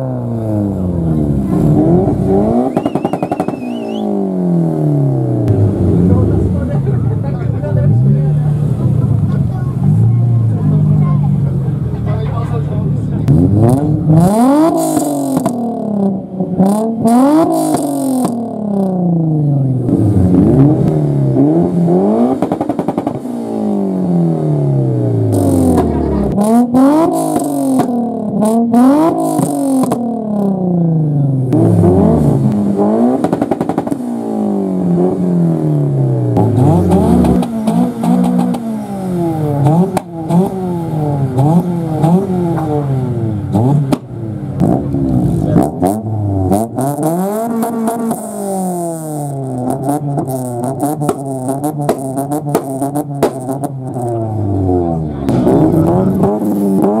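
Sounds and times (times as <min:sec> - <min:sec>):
car engine revving: 0:00.0 - 0:57.0
exhaust crackles: 0:00.0 - 0:57.0.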